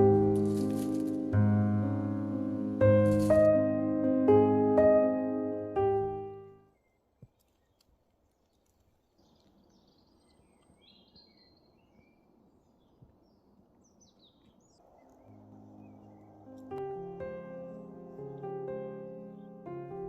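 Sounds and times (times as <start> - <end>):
soft outdoor hiss: 0.0 - 20.0
small birds chirping: 6.6 - 19.9.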